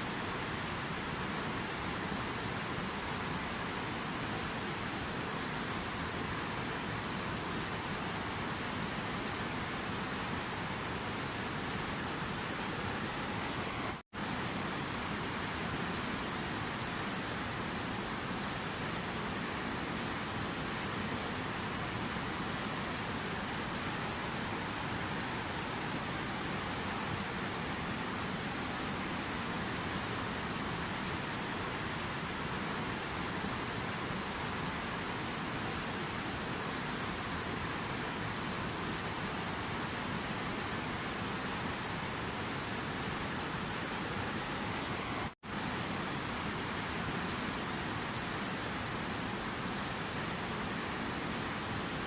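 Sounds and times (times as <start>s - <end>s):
rushing water: 0.0s - 52.0s.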